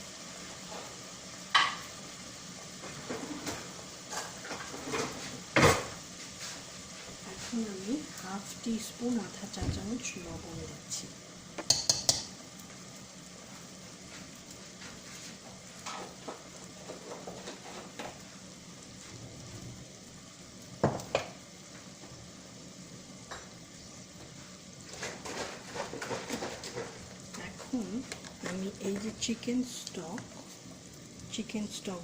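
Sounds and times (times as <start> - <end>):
chicken sizzling in a pan: 0.0 - 32.0
spoon clicking against pan: 11.6 - 12.3.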